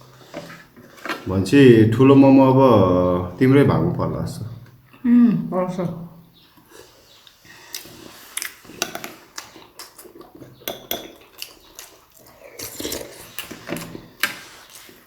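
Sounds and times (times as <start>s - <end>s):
chewing and wet mouth sounds: 6.6s - 15.0s
dishes clinking: 10.6s - 11.2s.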